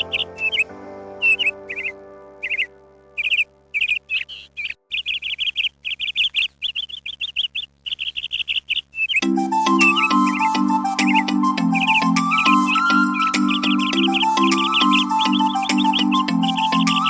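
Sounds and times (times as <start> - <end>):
held music chord: 0.0 - 4.5, 9.2 - 17.0
bird chirping: 0.0 - 17.0.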